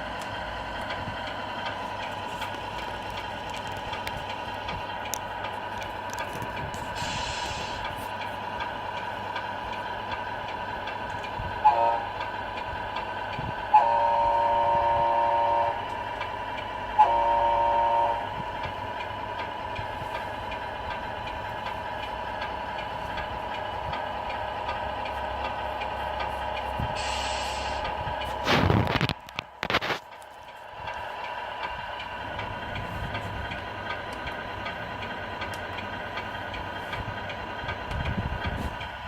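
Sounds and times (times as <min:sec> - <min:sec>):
diesel engine running sound: 0:00.0 - 0:39.0
air horn blasts: 0:11.6 - 0:12.1, 0:13.7 - 0:15.8, 0:17.0 - 0:18.3.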